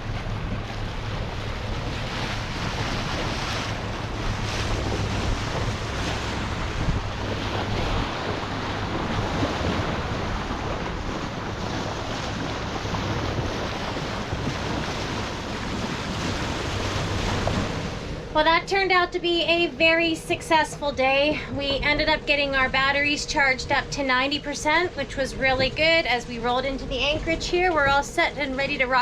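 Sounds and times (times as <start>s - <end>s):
wind on microphone: 0.0s - 18.4s
low engine drone: 0.0s - 29.0s
water rushing past hull: 0.0s - 29.0s.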